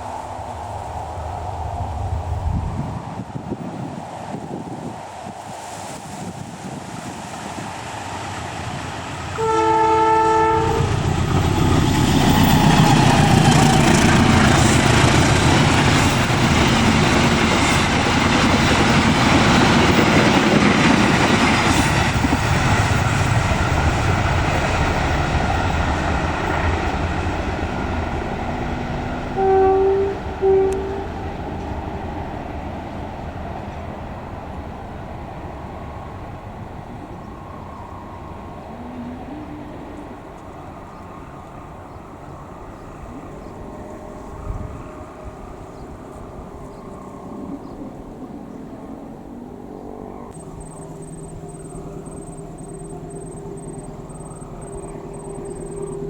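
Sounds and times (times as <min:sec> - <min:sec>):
short train horn toots: 0:09.4 - 0:11.1, 0:29.4 - 0:31.2
train horn blast: 0:09.4 - 0:11.7, 0:29.3 - 0:31.4
train wheels clattering on rails: 0:10.4 - 0:36.1.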